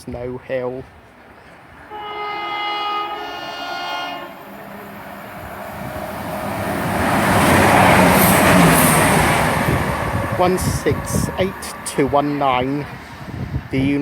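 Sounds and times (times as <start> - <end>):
train passing at speed: 0.8 - 14.0
two-tone train horn: 1.9 - 9.4.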